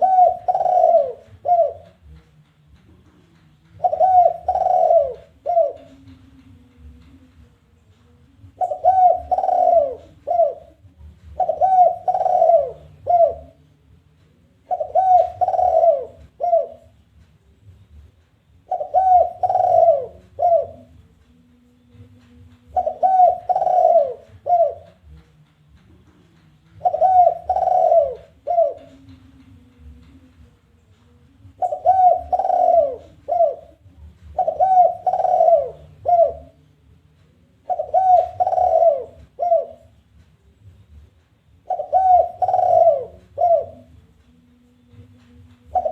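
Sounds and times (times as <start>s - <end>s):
dove cooing: 0.0s - 2.2s, 3.7s - 7.1s, 8.4s - 13.6s, 14.6s - 17.0s, 18.6s - 21.0s, 22.6s - 25.2s, 26.7s - 30.2s, 31.4s - 36.6s, 37.5s - 40.0s, 41.6s - 44.1s, 44.9s - 45.9s.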